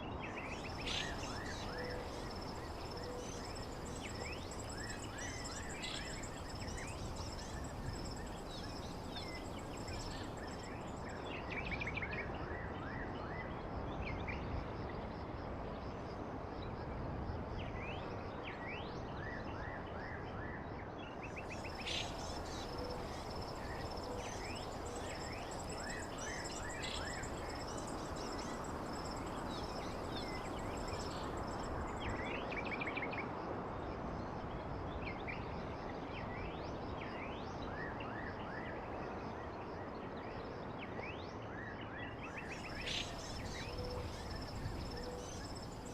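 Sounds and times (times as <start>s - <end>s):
steady background hiss: 0.0s - 12.4s, 21.3s - 34.0s, 42.2s - 45.9s
small birds chirping: 0.4s - 11.1s, 21.4s - 32.3s, 42.5s - 45.9s.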